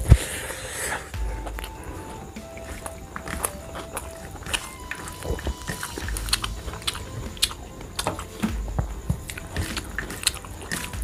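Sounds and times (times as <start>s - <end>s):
wet chewing: 0.0s - 11.0s.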